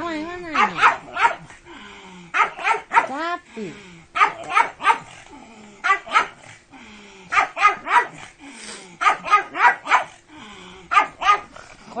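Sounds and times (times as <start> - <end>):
dog barking sharply: 0.6 - 1.5, 2.4 - 3.2, 4.2 - 5.1, 5.8 - 6.4, 7.3 - 8.2, 9.0 - 10.1, 10.9 - 11.5.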